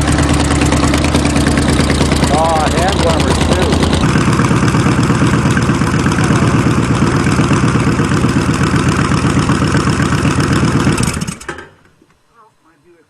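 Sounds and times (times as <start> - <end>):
car engine idling loudly: 0.0 - 11.5.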